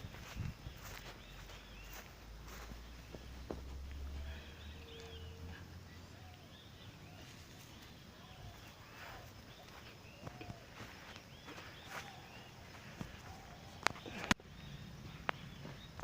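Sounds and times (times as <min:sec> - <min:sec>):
low hum: 0:00.0 - 0:11.1
small birds chirping: 0:00.0 - 0:16.0.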